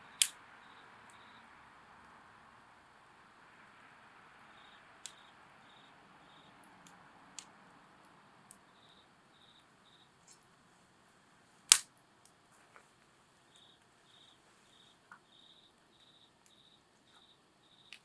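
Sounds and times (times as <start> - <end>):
crickets chirping: 0.0 - 18.0
campfire crackling and popping: 11.7 - 12.4.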